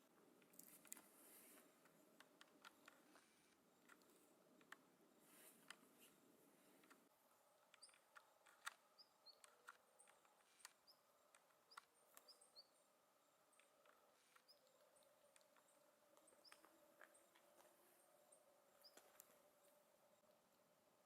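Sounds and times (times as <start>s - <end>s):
songbirds chirping: 0.0s - 21.0s
light clicks and ticks: 0.1s - 20.7s.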